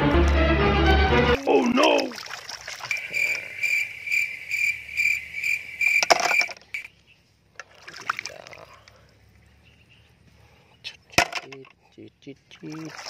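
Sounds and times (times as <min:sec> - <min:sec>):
high-pitched insect-like trill: 0:02.9 - 0:06.6.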